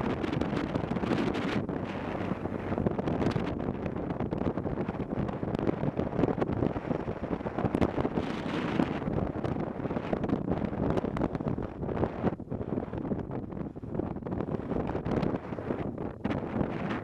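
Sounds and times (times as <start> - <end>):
road and vehicle noise: 0.0 - 12.2
wind buffeting microphone: 0.0 - 17.0.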